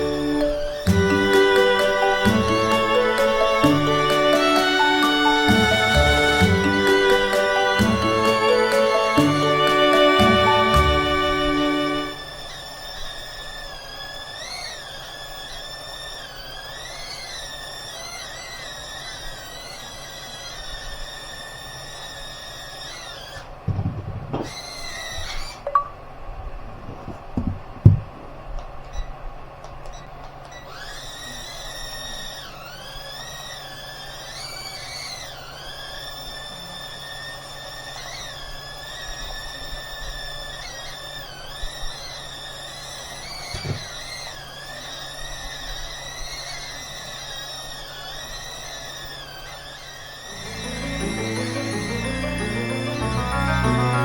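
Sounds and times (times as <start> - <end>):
drone propeller motors whining: 0.0 - 23.6, 30.8 - 52.9
thumps: 23.7 - 24.6.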